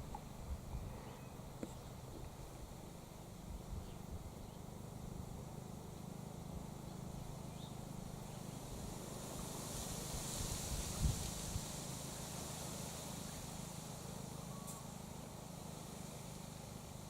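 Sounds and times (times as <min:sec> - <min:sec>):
faint bird chirps: 0:00.7 - 0:02.0, 0:14.3 - 0:15.0.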